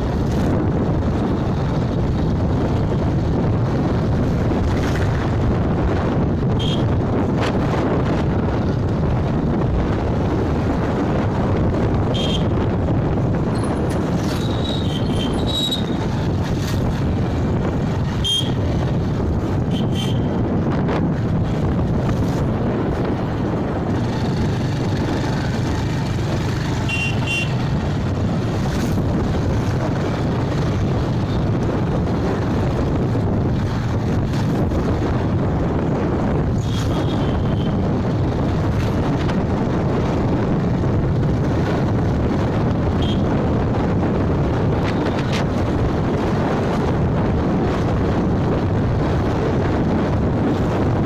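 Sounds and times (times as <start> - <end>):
motorbike road noise: 0.0 - 51.0
wind rushing over microphone: 0.0 - 51.0
short horn beeps: 26.8 - 27.6.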